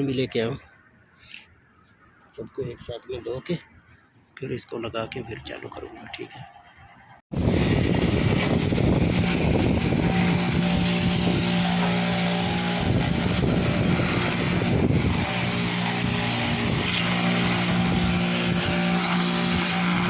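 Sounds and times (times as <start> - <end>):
electric motor machine humming: 7.4 - 20.0.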